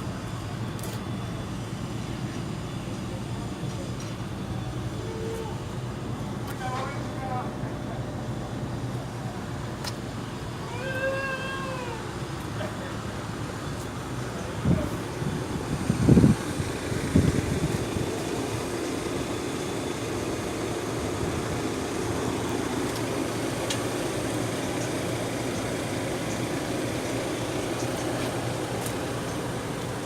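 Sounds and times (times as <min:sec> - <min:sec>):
machine humming: 0:13.1 - 0:30.0.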